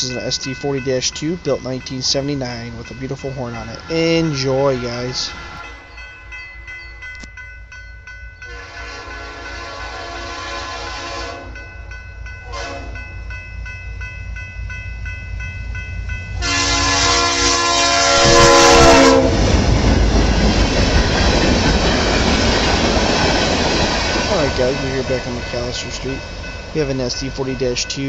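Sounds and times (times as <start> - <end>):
train wheels on rails: 0.0 - 7.4, 8.3 - 28.0
locomotive engines: 0.0 - 10.1, 11.8 - 28.0
locomotive horn blasts: 8.5 - 11.6, 12.4 - 13.0, 16.4 - 19.4.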